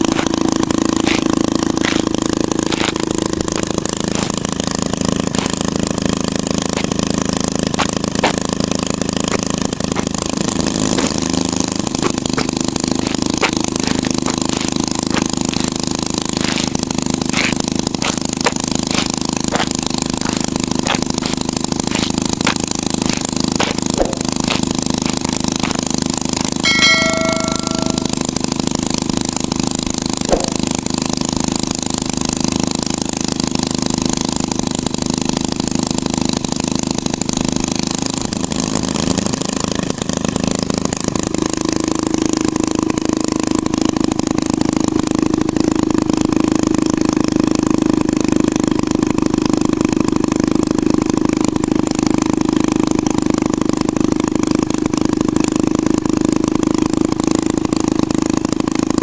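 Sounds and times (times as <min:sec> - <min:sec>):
small motor humming: 0:00.0 - 0:41.5.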